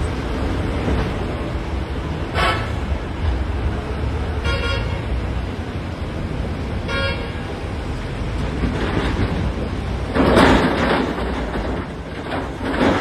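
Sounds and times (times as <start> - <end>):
horn toots: 2.3 - 2.9.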